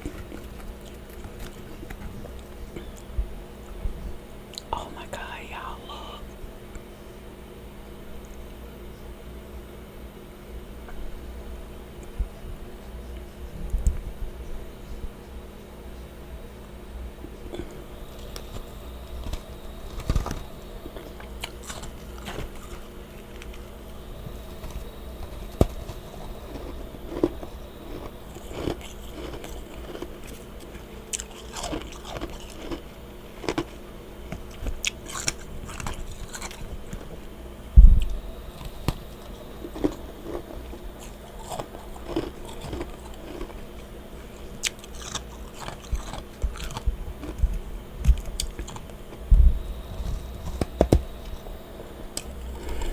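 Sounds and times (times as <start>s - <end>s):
person chewing crunchy frost: 0.0s - 3.3s, 4.5s - 6.2s, 17.2s - 52.9s
steady low hum: 0.0s - 52.9s
loud low thump: 37.8s - 38.1s.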